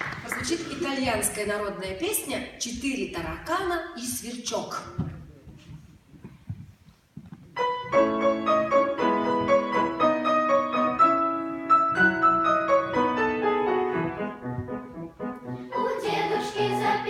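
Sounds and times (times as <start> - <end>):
piano chords and melody: 7.6 - 17.0.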